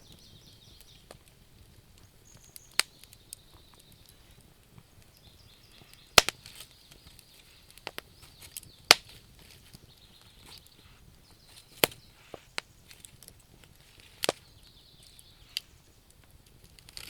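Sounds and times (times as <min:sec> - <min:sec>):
wood fire crackling and popping: 0:00.0 - 0:17.0
insects chirring: 0:02.0 - 0:09.1.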